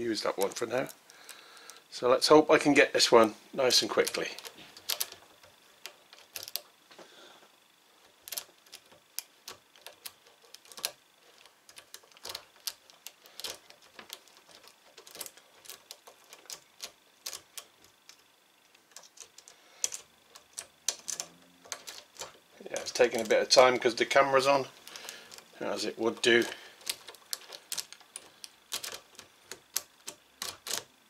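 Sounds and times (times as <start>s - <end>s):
lock pick clicking in padlock: 4.4s - 5.2s, 5.8s - 6.6s, 18.9s - 22.3s, 26.8s - 30.9s.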